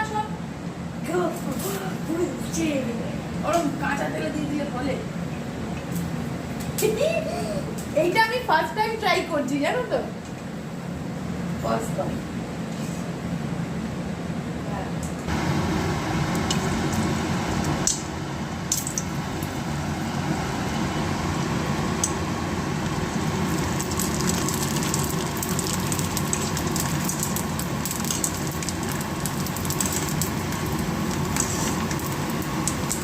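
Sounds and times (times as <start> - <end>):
food frying in hot oil: 15.3 - 33.0.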